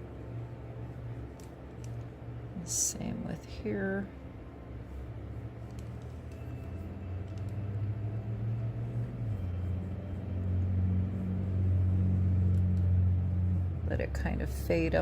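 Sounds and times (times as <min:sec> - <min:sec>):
low rumbling hum: 0:00.0 - 0:15.0.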